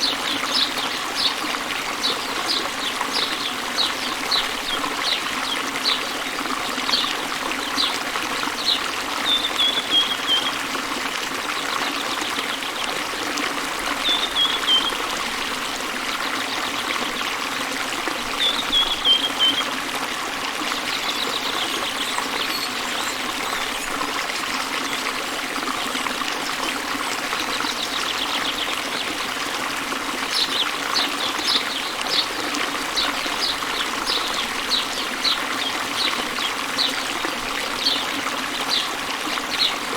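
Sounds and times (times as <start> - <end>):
birds chirping: 0.0 - 10.6, 14.0 - 15.0, 18.4 - 19.7, 30.3 - 39.9
waterfall rushing: 0.0 - 10.9, 27.4 - 39.9.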